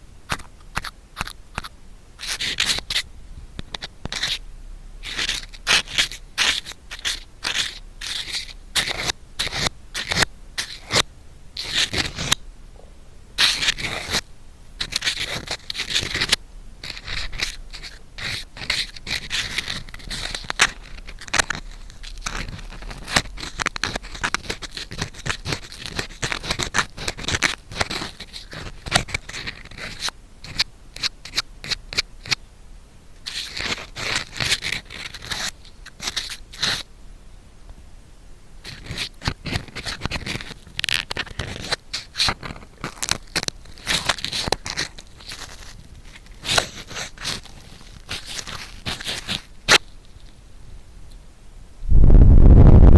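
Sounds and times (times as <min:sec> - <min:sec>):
ear pick scratching in ear: 0:38.6 - 0:50.0.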